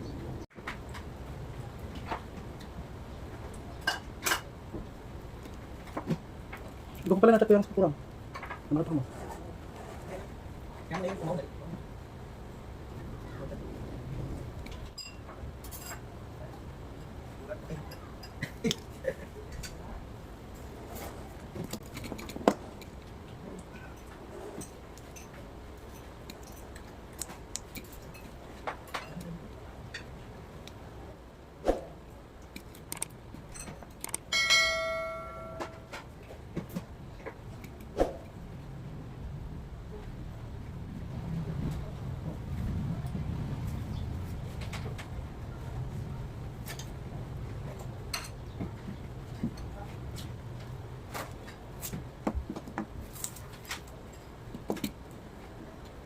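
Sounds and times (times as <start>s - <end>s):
low steady hum: 0.0s - 56.0s
small plastic parts clicking: 32.5s - 33.2s, 34.0s - 34.3s
metallic bell-like strike: 34.3s - 35.8s.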